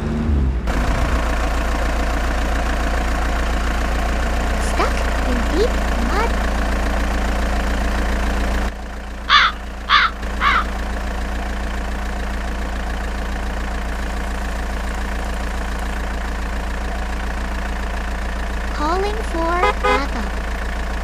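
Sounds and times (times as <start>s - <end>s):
truck engine idling: 0.0s - 21.0s
bird calling: 9.3s - 10.8s.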